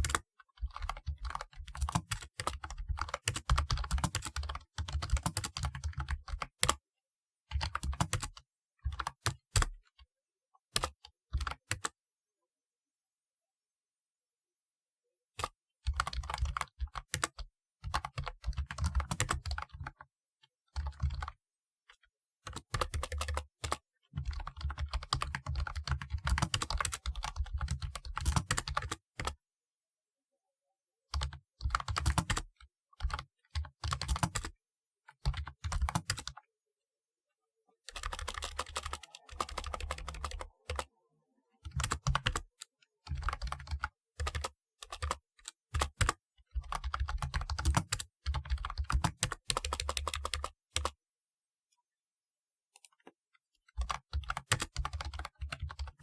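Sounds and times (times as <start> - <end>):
keyboard keystroke clicks: 38.0 - 40.9.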